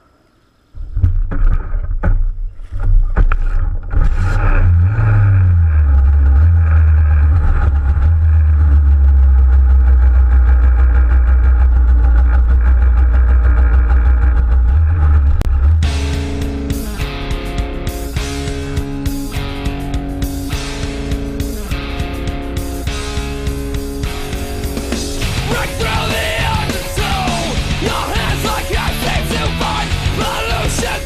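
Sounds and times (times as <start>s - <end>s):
moped engine starting and running: 3.9s - 31.0s.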